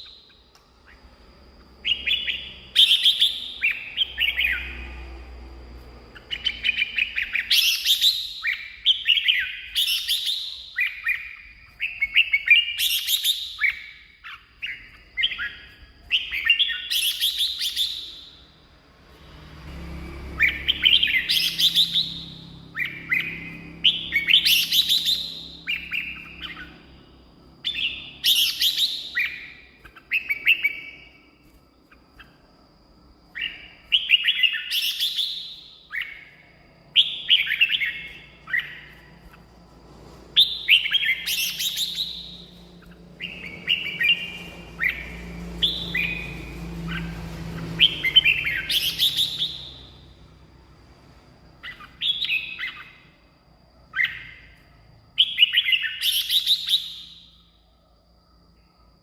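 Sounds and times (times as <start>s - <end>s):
bird singing whistled phrases: 0.0s - 5.1s, 6.2s - 18.5s, 20.2s - 27.0s, 27.6s - 31.3s, 33.3s - 39.1s, 40.4s - 50.0s, 51.6s - 53.1s, 55.2s - 57.5s.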